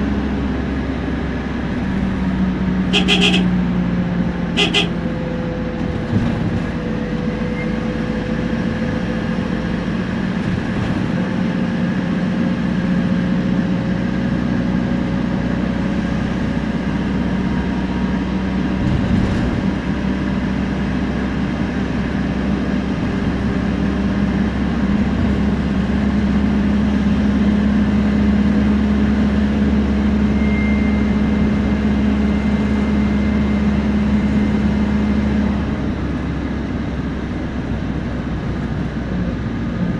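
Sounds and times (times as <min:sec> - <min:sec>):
bus engine droning: 0:00.0 - 0:39.9
turbo and differential whine: 0:01.7 - 0:05.4, 0:24.5 - 0:36.4
thin high whistle: 0:30.4 - 0:31.1.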